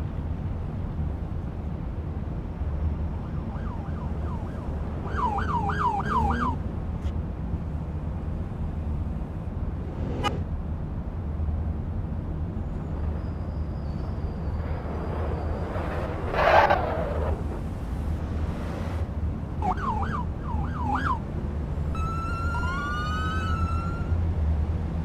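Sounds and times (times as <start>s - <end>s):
emergency siren yelping: 3.3s - 6.6s, 19.6s - 21.2s, 21.9s - 24.2s
steady low rumble: 7.6s - 12.3s.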